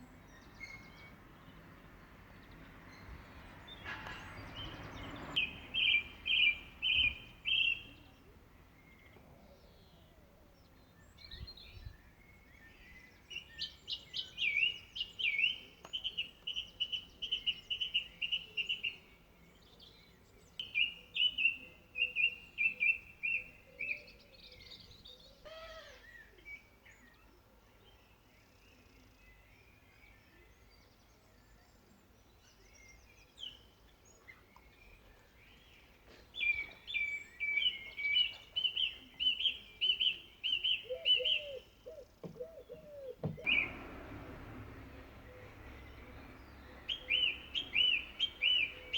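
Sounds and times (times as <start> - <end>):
sweeping bird call: 36.4 - 48.9
songbird whistled notes: 42.4 - 48.9.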